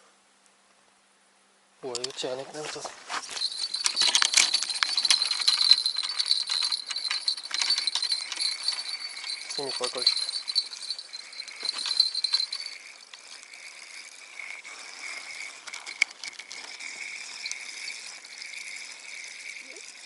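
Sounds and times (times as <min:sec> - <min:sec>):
bite-alarm bell jingling: 0:03.1 - 0:20.0.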